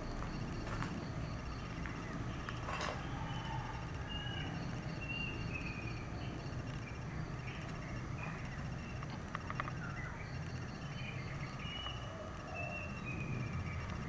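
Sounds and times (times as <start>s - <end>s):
birds chirping: 0.0s - 14.0s
steady low rumble: 0.0s - 14.0s
sharp clicks: 8.6s - 10.6s.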